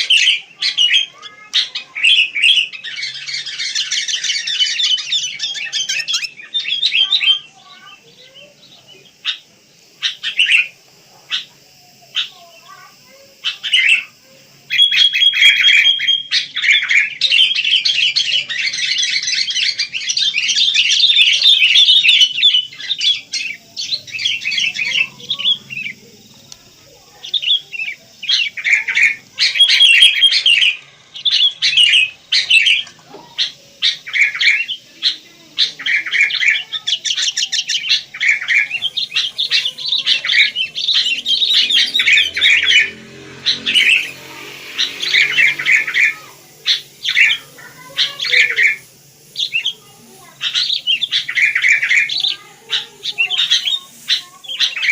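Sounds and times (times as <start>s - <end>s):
birds chirping and squawking: 0.0s - 54.9s
whistled bird note: 33.8s - 54.9s.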